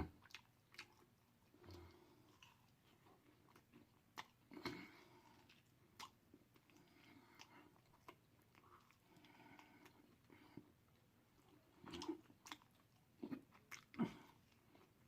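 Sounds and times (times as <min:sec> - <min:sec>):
person chewing: 0:00.0 - 0:15.0.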